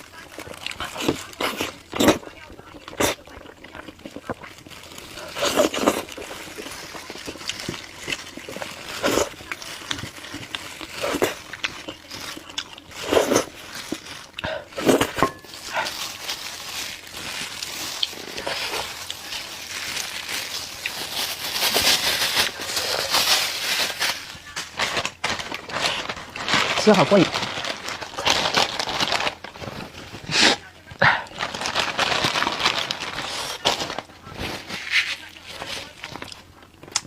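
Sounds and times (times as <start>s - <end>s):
wet chewing and lip smacking: 5.6s - 14.5s.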